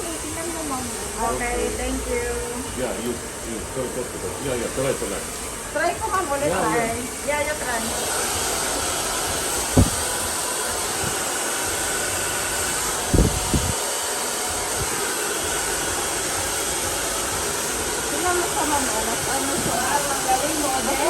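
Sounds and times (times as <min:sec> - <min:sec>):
hair dryer blowing: 0:00.0 - 0:21.0
dull low thuds: 0:09.6 - 0:10.2.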